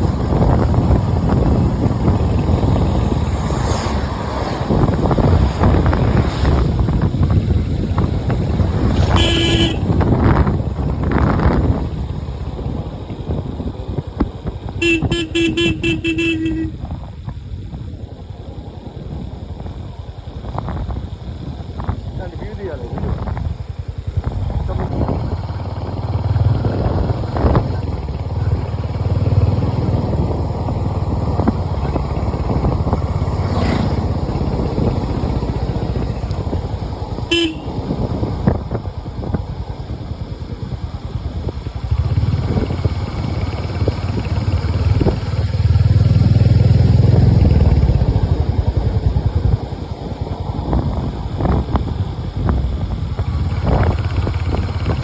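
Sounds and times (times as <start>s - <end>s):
vehicle engine rumble: 0.0s - 55.0s
car horn toot: 9.0s - 10.0s, 14.8s - 16.8s, 37.3s - 37.8s.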